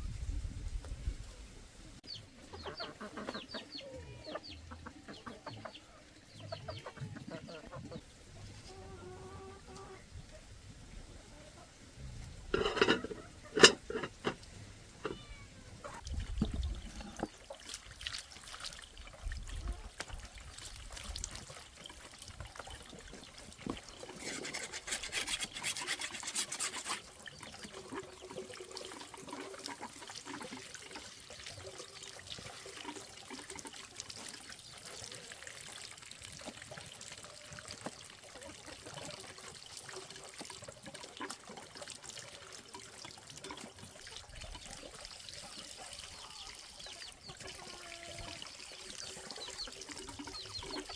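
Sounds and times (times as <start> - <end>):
water trickling: 12.2 - 50.9.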